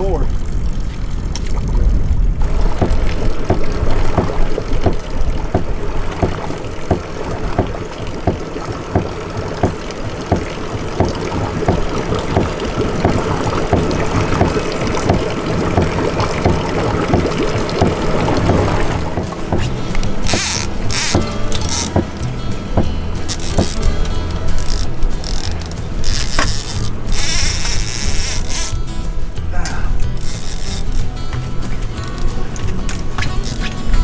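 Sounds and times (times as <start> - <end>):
motorboat engine rumble: 0.0 - 34.0
water noise: 0.0 - 34.0
rhythmic knocks: 2.4 - 29.4.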